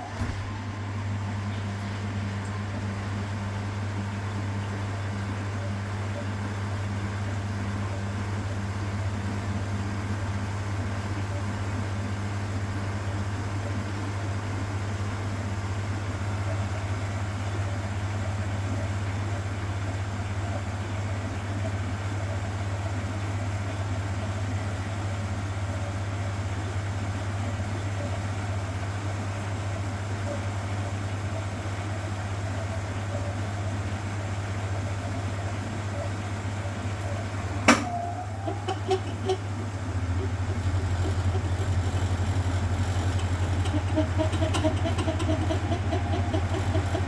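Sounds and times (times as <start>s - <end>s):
washing machine humming: 0.0s - 47.0s.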